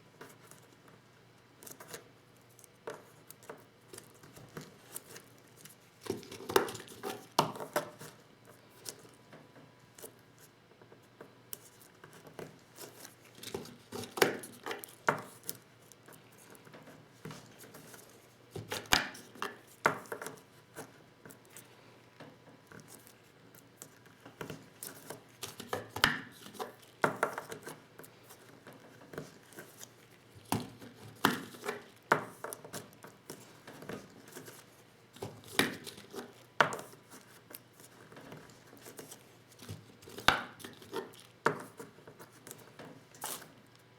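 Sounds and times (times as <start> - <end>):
light rubbing and handling noise: 22.6 - 43.9.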